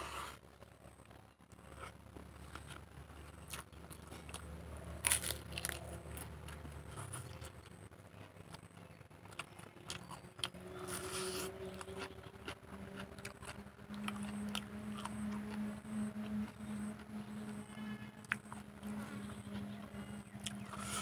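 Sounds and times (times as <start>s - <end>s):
steady low hum: 0.0s - 21.0s
chewing and wet mouth clicks: 11.5s - 17.2s.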